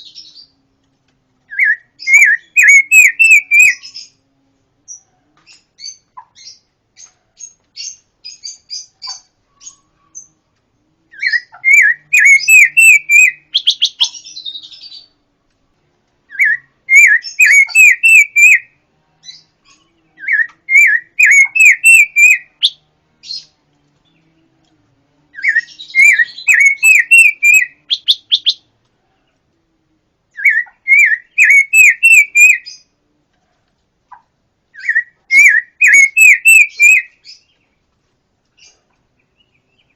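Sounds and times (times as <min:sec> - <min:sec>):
songbird singing whistled notes: 0:01.5 - 0:04.2, 0:04.9 - 0:10.4, 0:11.1 - 0:15.2, 0:16.3 - 0:24.6, 0:25.3 - 0:28.7, 0:30.3 - 0:32.9, 0:34.7 - 0:37.8
fast bird trill: 0:01.6 - 0:04.1, 0:11.2 - 0:14.9, 0:16.4 - 0:18.7, 0:20.2 - 0:22.8, 0:25.4 - 0:28.7, 0:30.4 - 0:32.8, 0:34.8 - 0:37.4
soft high chirps: 0:25.4 - 0:28.7.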